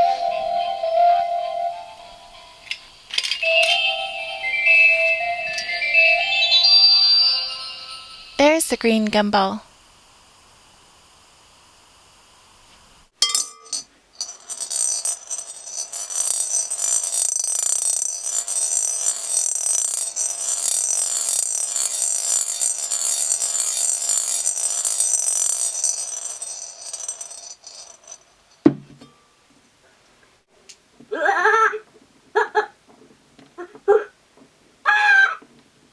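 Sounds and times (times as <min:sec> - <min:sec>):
toy electronic sound: 0:03.4 - 0:09.6
gumballs clattering inside machine: 0:14.2 - 0:28.2
knock: 0:28.6 - 0:29.1.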